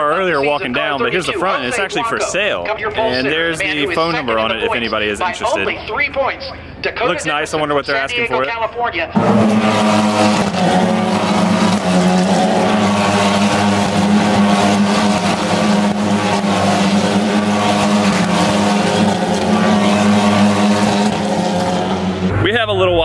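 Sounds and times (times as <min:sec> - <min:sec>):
car engine droning steadily: 0:09.1 - 0:23.0.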